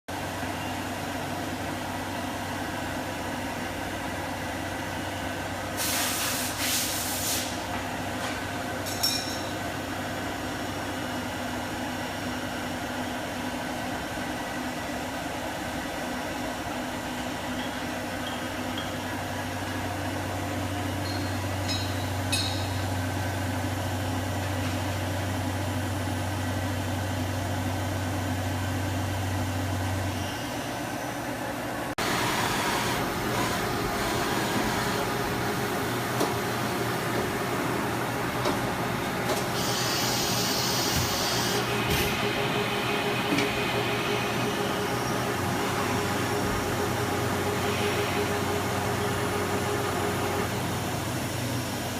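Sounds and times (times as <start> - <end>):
air hiss: 5.8 - 7.7, 39.5 - 41.6
machining center humming: 7.9 - 51.9.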